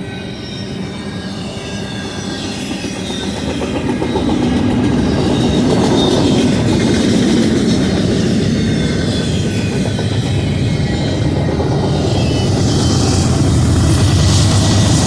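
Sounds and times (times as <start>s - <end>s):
faint high squeal: 0.0s - 6.6s
freight train wheels rumbling: 0.0s - 15.0s.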